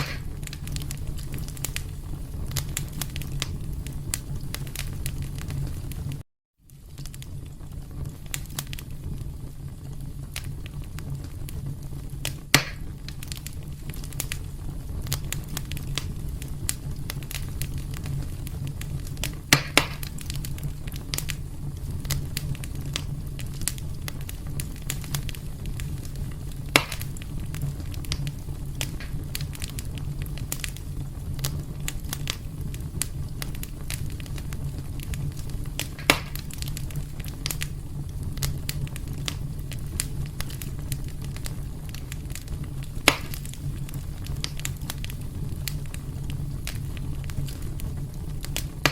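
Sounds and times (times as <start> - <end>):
sharp wood pops: 0.0 - 0.4, 12.5 - 12.9, 19.5 - 20.1, 26.7 - 27.1, 35.9 - 36.5, 43.1 - 43.5
fire crackling: 0.0 - 48.9
fire flames rumbling: 0.0 - 48.9.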